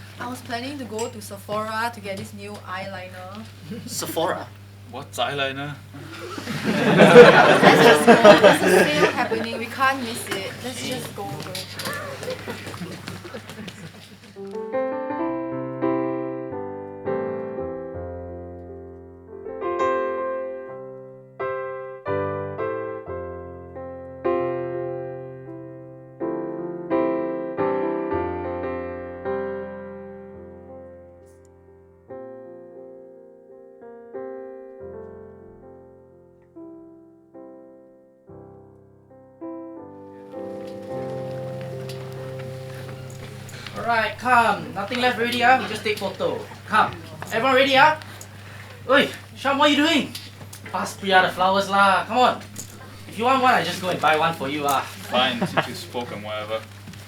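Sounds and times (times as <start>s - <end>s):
slow gentle piano music: 14.3s - 46.7s.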